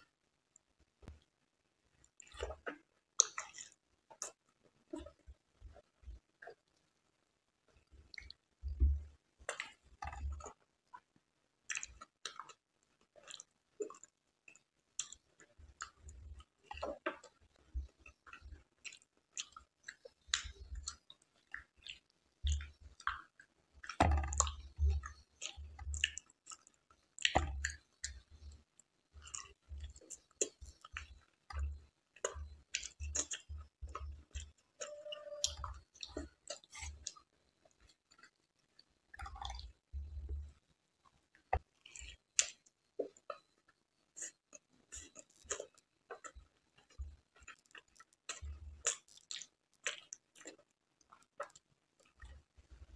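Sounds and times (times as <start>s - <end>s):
chewing and wet lip smacks: 11.7s - 12.6s, 13.2s - 16.1s, 18.0s - 28.5s, 29.2s - 38.4s, 41.7s - 43.5s, 44.2s - 52.4s.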